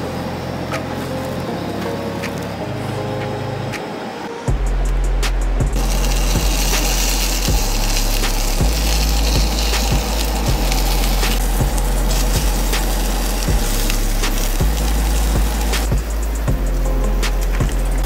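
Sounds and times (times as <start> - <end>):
background music with bass: 0.0 - 3.9, 4.5 - 18.0
food sizzling in a skillet: 5.8 - 15.9.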